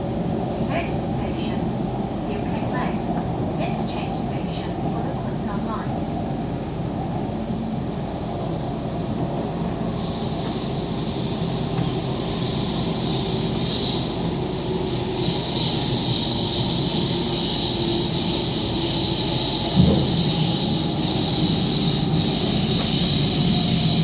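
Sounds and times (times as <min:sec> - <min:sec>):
train rumbling along track: 0:00.0 - 0:24.0
high hiss: 0:07.8 - 0:24.0.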